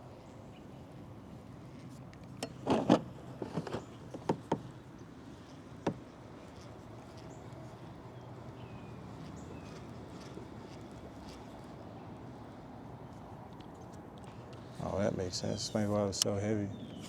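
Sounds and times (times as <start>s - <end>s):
gear knocking on plastic kayak: 5.8s - 6.1s.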